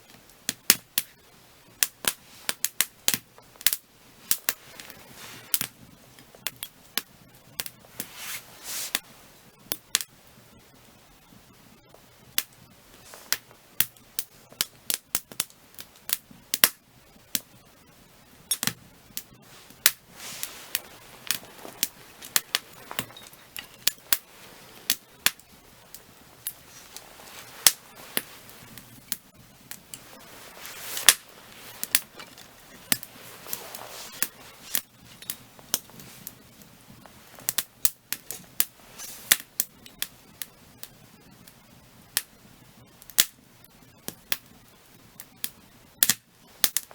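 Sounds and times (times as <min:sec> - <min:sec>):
firewood crackling and popping: 0:00.0 - 0:46.9
soft hissing: 0:01.0 - 0:06.4, 0:07.2 - 0:09.5, 0:10.3 - 0:14.9, 0:17.2 - 0:37.6, 0:38.2 - 0:39.4.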